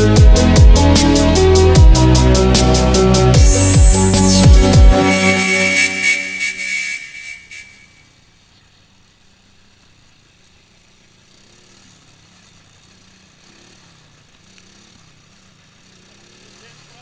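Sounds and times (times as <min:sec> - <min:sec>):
small engine idling: 0:08.2 - 0:17.0.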